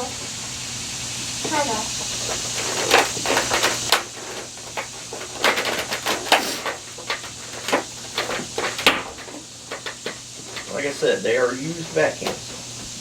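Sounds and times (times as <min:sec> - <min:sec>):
rice rattling in vacuum: 0:00.0 - 0:13.0
vacuum motor hiss: 0:00.0 - 0:13.0.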